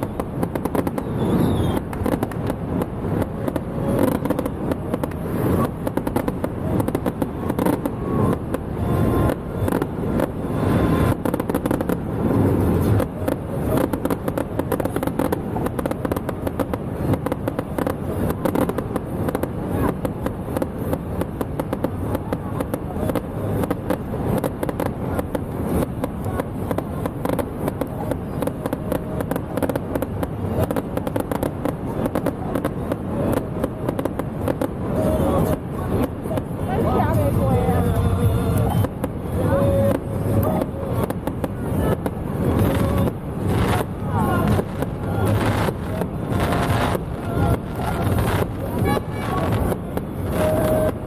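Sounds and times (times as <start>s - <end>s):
fireworks crackling and banging: 0.0s - 51.0s.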